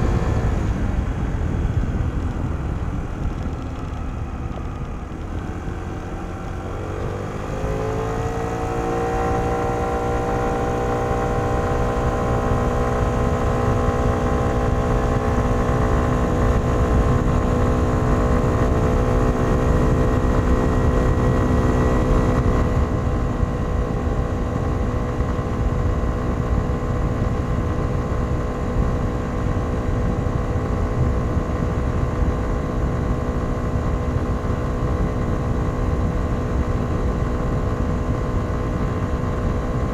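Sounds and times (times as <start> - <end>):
low rumble: 0.0 - 9.2
scooter engine accelerating: 0.0 - 39.9.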